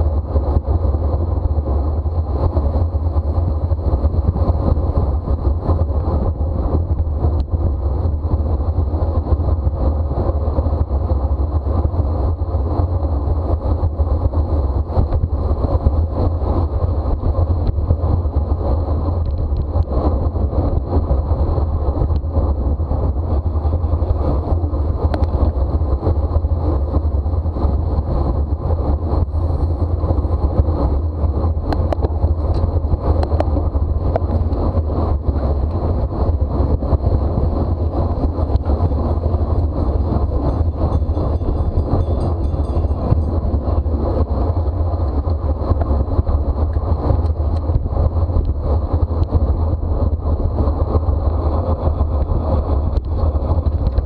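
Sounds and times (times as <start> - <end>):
bicycle road noise: 0.0 - 54.0
wind buffeting microphone: 0.0 - 54.0.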